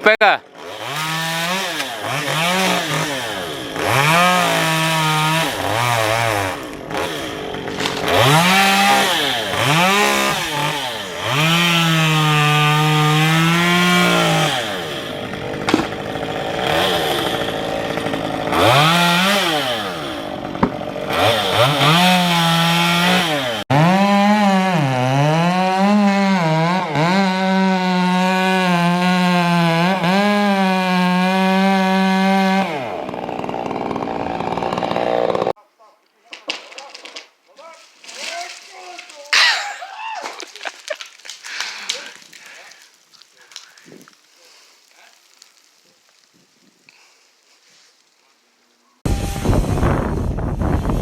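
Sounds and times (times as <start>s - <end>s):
chainsaw revving: 0.4s - 35.6s, 39.3s - 39.8s.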